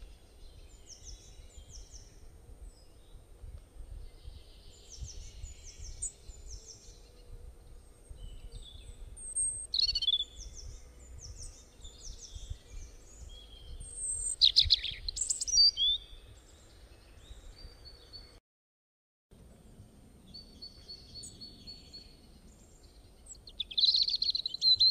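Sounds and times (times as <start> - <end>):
birds chirping: 3.9 - 18.4, 19.6 - 24.9.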